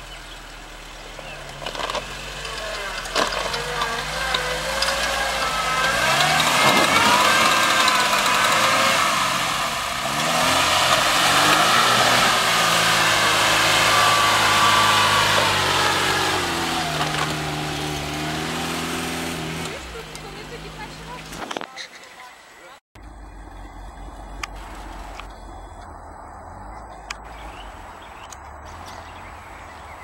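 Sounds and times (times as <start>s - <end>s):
car engine revving hard: 0.0s - 21.4s.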